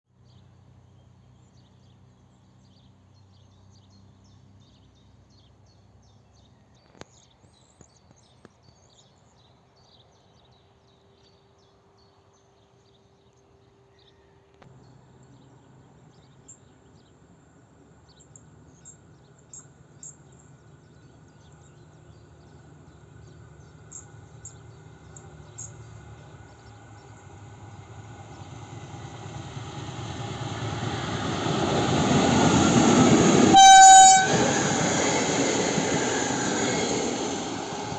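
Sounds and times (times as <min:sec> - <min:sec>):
diesel locomotive engine drone: 0:14.7 - 0:37.9.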